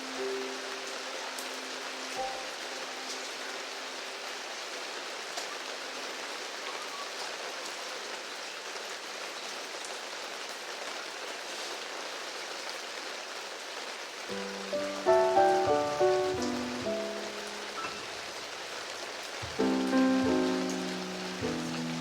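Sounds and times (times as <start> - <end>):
faint piano tone: 0.0 - 4.5, 14.3 - 18.6, 19.4 - 22.0
steady rain falling: 0.0 - 22.0.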